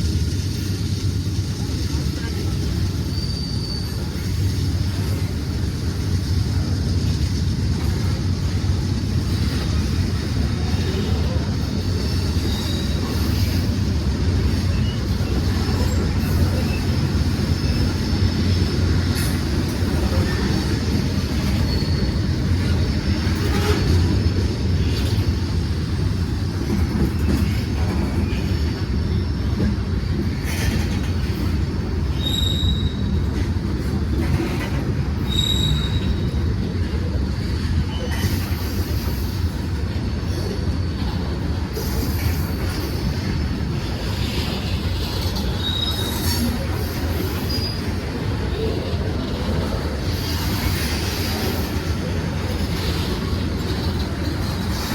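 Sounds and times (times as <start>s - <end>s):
train wheels rumbling on rail: 0.0s - 54.9s
high wheel squeals: 2.7s - 5.1s, 12.0s - 25.2s, 27.1s - 33.3s, 35.2s - 36.6s, 44.3s - 48.8s.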